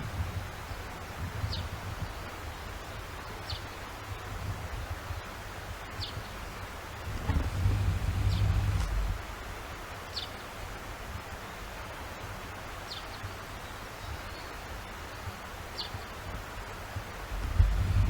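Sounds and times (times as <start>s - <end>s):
steady outdoor hiss: 0.0s - 18.0s
low rumble: 7.0s - 9.6s, 17.4s - 18.0s.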